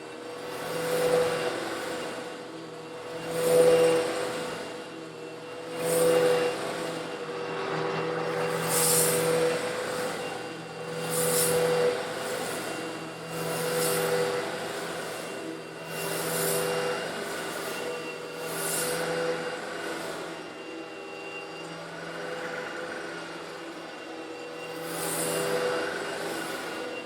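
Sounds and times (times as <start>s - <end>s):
vacuum cleaner motor whine: 0.0s - 27.0s
vacuum sucking up stone granules: 8.0s - 21.4s.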